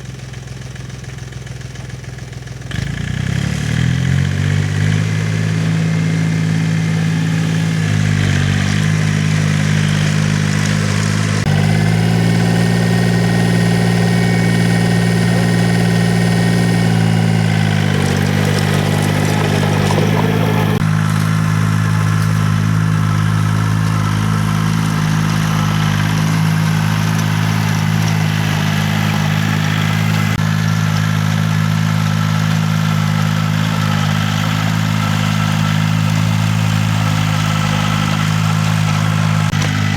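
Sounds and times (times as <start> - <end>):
tiller engine running: 0.0 - 39.9
machine rattling: 11.4 - 20.8.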